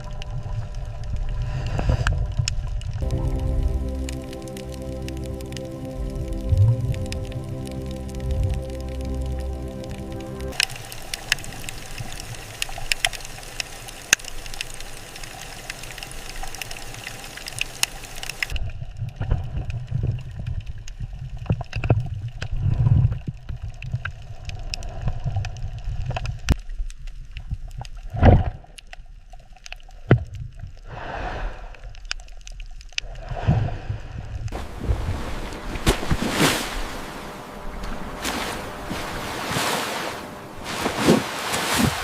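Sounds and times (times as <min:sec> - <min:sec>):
low water rumbling: 0:00.0 - 0:26.5, 0:33.0 - 0:42.0
water gurgling and bubbling: 0:03.0 - 0:14.1, 0:34.5 - 0:42.0.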